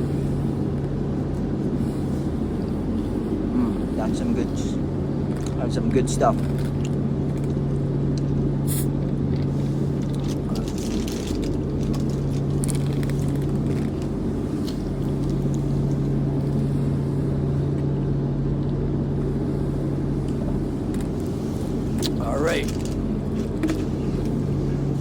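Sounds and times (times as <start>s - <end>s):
truck engine idling: 0.0s - 17.8s, 19.1s - 25.0s
faint clicks and rustles: 9.3s - 16.6s.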